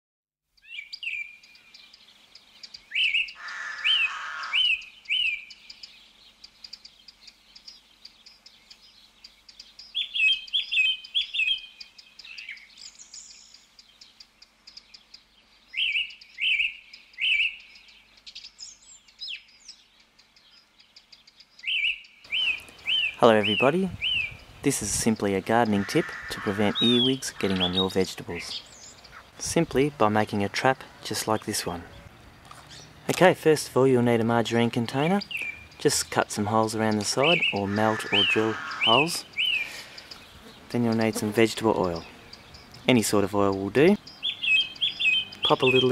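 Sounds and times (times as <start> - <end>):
birds chirping: 0.4 - 45.9
harsh low bird call: 2.9 - 5.6, 21.6 - 29.4, 36.9 - 45.9.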